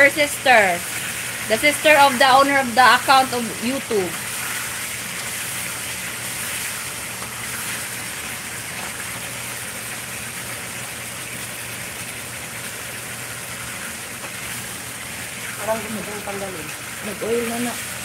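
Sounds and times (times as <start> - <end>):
chicken sizzling in frying pan: 0.0 - 18.0.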